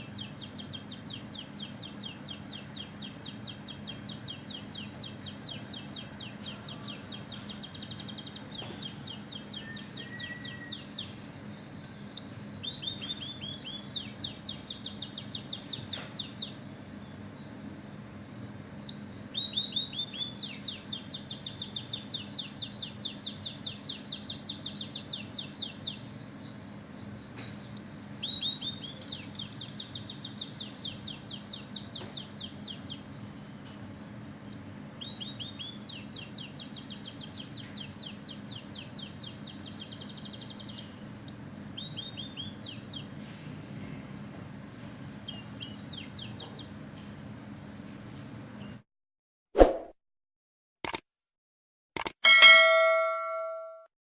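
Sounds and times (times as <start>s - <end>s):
bird singing fast high trills: 0.0s - 16.6s, 52.4s - 53.8s.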